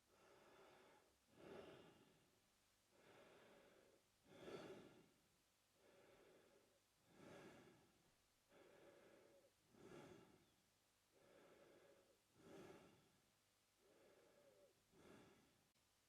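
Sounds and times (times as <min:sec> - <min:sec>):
man breathing through mouth: 0:02.9 - 0:05.1, 0:05.8 - 0:07.9, 0:08.5 - 0:13.2, 0:13.8 - 0:15.6.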